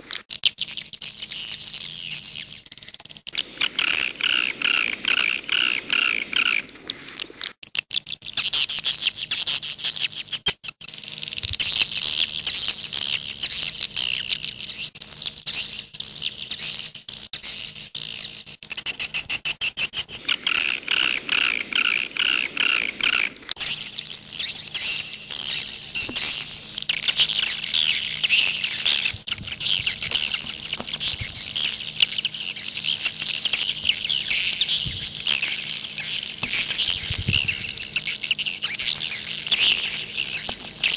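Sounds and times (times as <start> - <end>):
faint steady hum: 20.0 - 40.9
swiftlets twittering: 20.5 - 40.9.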